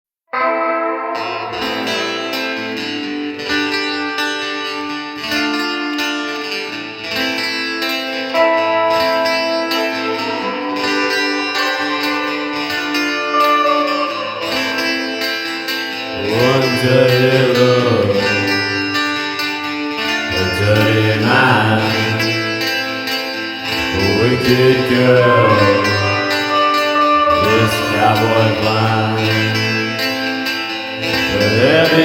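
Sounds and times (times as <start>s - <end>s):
rock guitar plucked notes: 0.3s - 32.0s.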